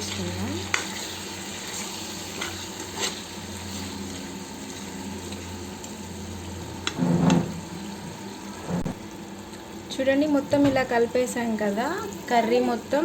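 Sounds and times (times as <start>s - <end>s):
curry sizzling in a pan: 0.0s - 13.0s.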